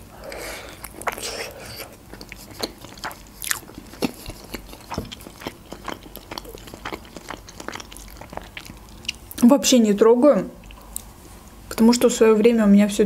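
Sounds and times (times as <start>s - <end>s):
chewing mouth clicks and smacks: 0.8s - 9.4s.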